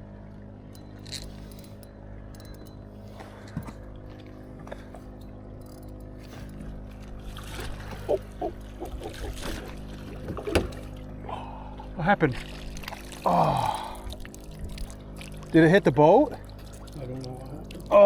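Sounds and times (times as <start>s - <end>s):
boat motor humming: 0.0s - 18.0s
water splashes: 6.8s - 18.0s.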